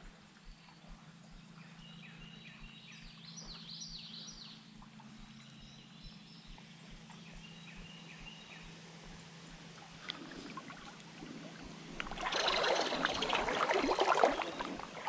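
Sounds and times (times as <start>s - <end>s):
faint low hum: 0.0s - 15.0s
bird chirping: 0.4s - 8.8s.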